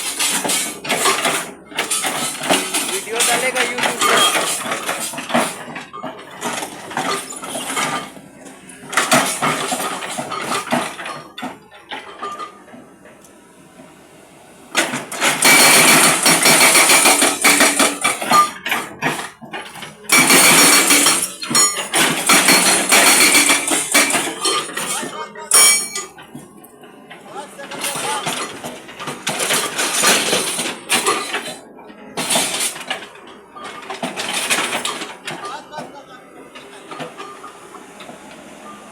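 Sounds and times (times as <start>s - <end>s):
hydraulic breaker hammering concrete: 14.8s - 19.3s, 20.1s - 26.0s.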